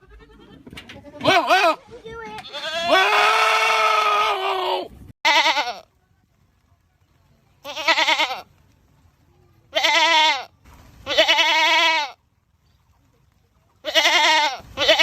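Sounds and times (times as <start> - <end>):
goats screaming: 2.4 - 5.7.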